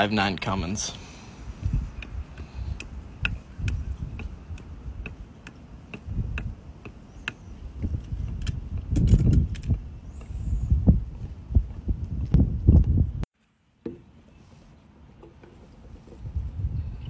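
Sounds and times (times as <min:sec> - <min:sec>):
steady ticking: 0:01.7 - 0:07.4.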